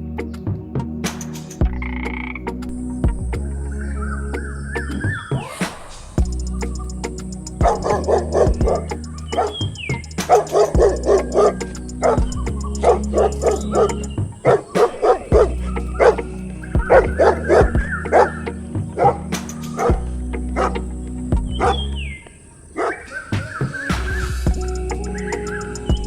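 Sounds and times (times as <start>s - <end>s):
background music with bass: 0.0s - 5.4s, 6.2s - 22.2s, 23.4s - 26.0s.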